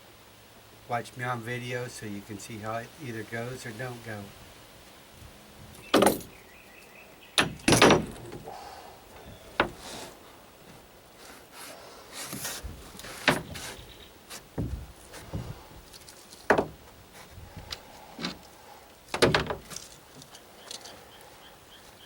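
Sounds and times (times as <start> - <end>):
light rustling: 4.8 - 22.0
dull thumps: 5.9 - 6.3, 7.4 - 8.6, 9.2 - 10.0, 12.3 - 15.8, 16.4 - 17.4, 19.1 - 19.9
sharp knocks: 5.9 - 6.3, 7.4 - 8.5, 16.5 - 16.8, 19.1 - 19.7.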